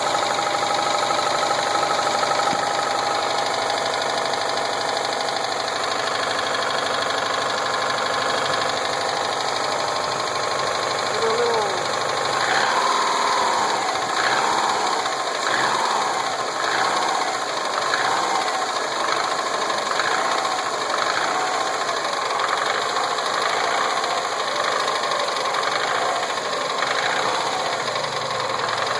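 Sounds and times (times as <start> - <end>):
car engine revving: 0.0 - 28.9
man asking: 11.2 - 11.9.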